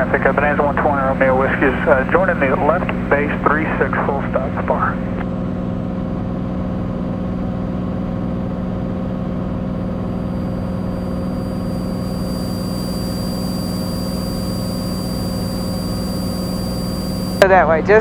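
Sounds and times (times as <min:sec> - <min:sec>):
propeller plane engine drone: 0:00.0 - 0:18.0.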